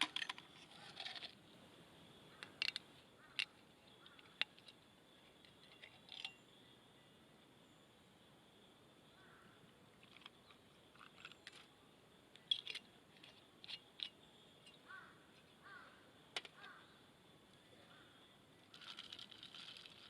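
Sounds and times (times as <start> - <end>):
faint high hum: 0.0 - 18.8
distant bird calls: 2.2 - 7.9, 9.0 - 11.6, 12.4 - 19.0.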